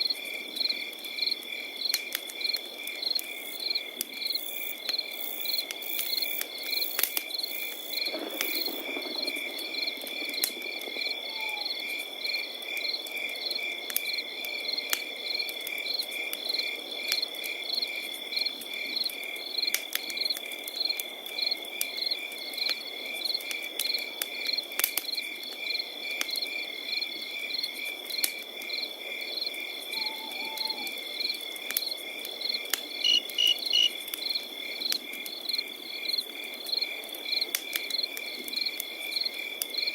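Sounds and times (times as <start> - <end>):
crickets chirping: 0.0 - 16.8, 20.8 - 39.9
campfire popping and crackling: 0.0 - 30.0, 30.6 - 39.9
high insect trill: 32.4 - 34.4.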